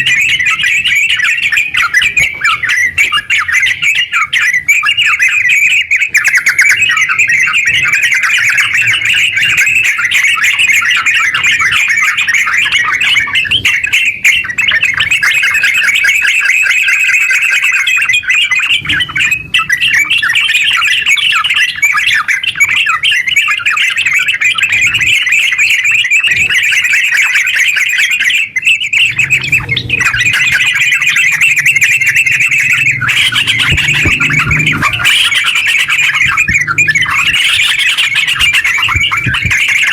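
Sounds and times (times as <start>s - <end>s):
bulbul singing chattering notes: 0.0s - 39.9s.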